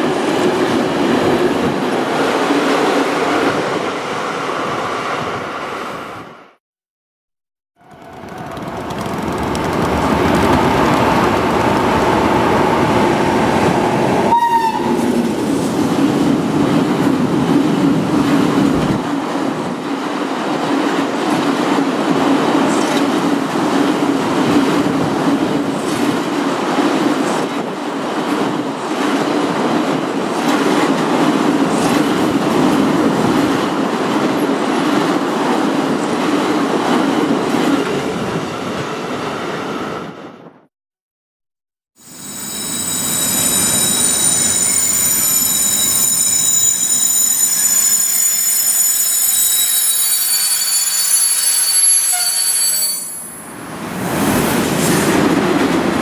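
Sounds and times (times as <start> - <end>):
freight train wheels rumbling: 7.8 - 39.6, 53.5 - 56.0
train horn: 14.3 - 15.1, 49.3 - 53.3.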